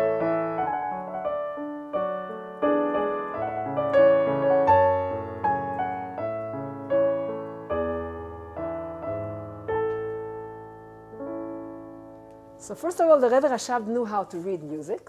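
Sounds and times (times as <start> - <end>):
slow piano melody: 0.0 - 13.6.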